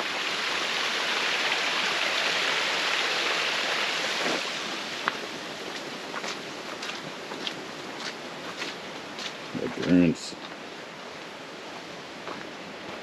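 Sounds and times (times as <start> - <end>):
stream water splashing: 0.0 - 9.5.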